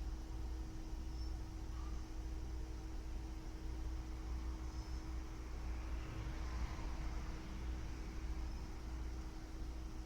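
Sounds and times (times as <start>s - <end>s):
low electrical hum: 0.0s - 10.0s
thin constant tone: 0.0s - 10.0s.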